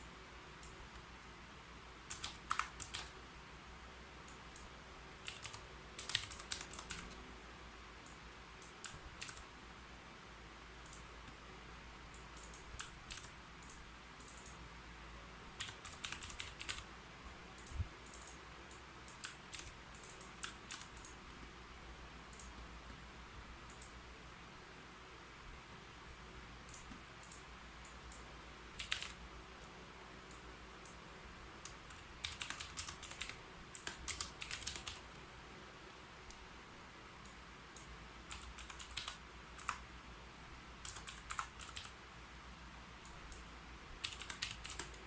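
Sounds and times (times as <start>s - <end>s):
keyboard typing: 2.1s - 3.2s, 4.2s - 7.2s, 8.1s - 9.5s, 12.1s - 14.6s, 15.6s - 16.9s, 17.6s - 21.2s, 22.3s - 23.0s, 26.7s - 31.0s, 31.6s - 35.1s, 37.8s - 39.8s, 40.8s - 42.0s, 43.0s - 45.0s.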